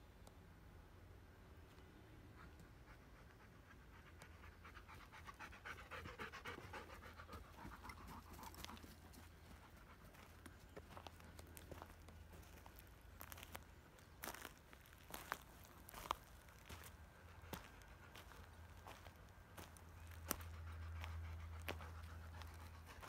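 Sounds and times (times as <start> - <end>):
dog panting: 2.4 - 11.8, 19.6 - 23.0.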